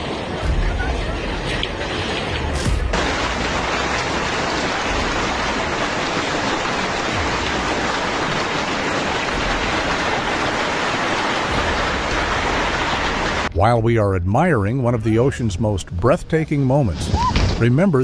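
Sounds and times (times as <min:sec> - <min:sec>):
rushing water: 0:00.0 - 0:13.5.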